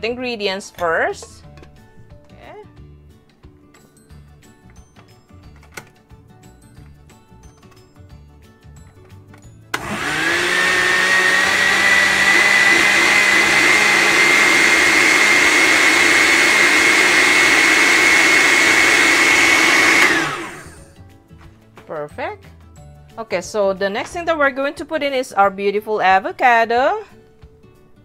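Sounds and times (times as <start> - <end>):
blender motor whine: 9.7 - 20.9.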